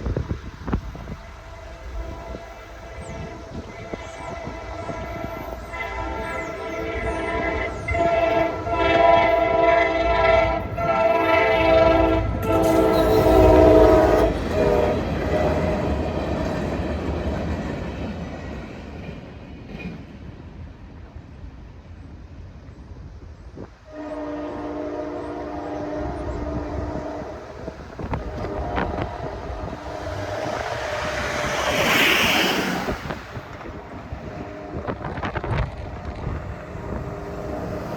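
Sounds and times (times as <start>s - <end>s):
train rumbling past: 0.0s - 37.9s
locomotive horn blasts: 1.5s - 16.0s, 23.9s - 37.9s.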